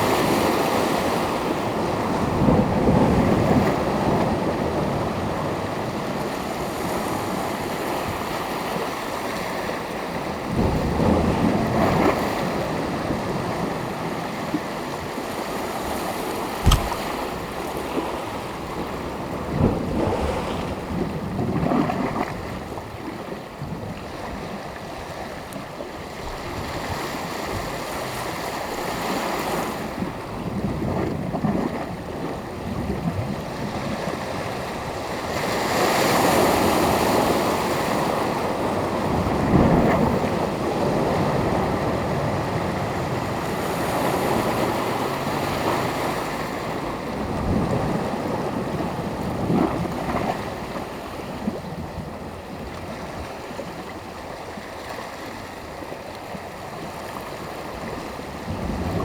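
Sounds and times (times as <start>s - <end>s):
sharp knock: 16.6s - 17.4s
surf washing onto beach: 16.6s - 17.8s.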